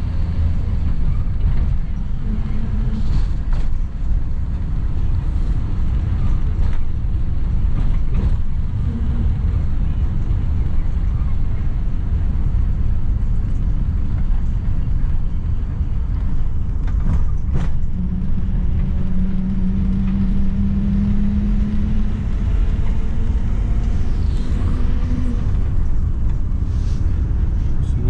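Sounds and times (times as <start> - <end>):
vehicle rumble: 0.0 - 28.0
steady hum: 17.6 - 28.0.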